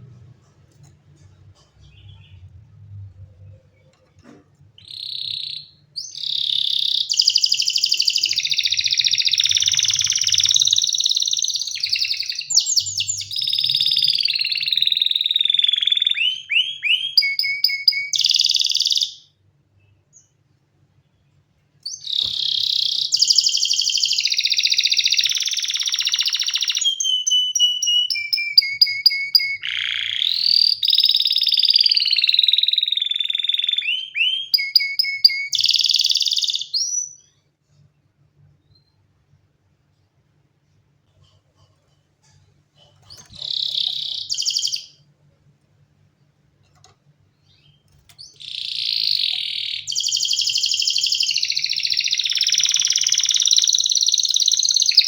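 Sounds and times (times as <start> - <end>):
canary singing trills: 4.8 - 19.3, 21.8 - 37.4, 42.8 - 45.0, 47.4 - 55.0.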